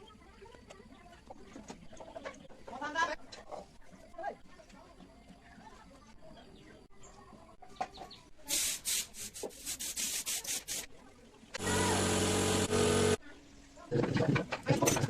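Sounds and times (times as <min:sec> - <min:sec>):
small motor running: 0:11.6 - 0:13.2.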